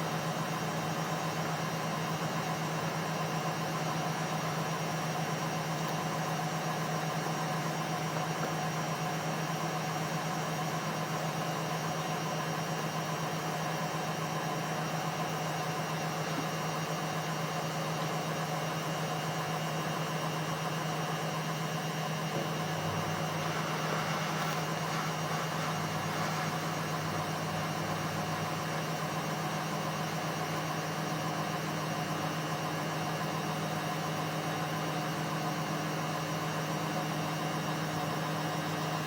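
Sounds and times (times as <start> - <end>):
washing machine humming: 19.4 - 31.7.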